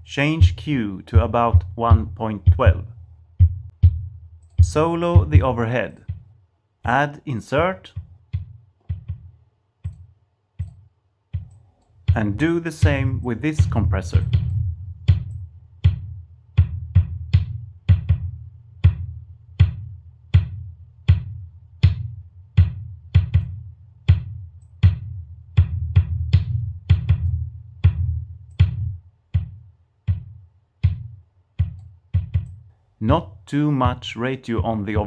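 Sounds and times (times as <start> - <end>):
boomy bass drum hits: 0.4 - 6.3, 12.1 - 32.5.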